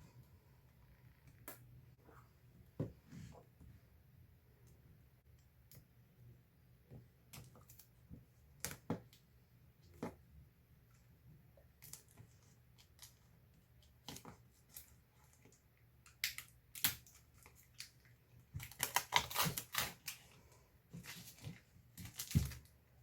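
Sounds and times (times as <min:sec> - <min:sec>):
packaging crinkling and rustling: 0:18.5 - 0:20.4, 0:21.0 - 0:22.7.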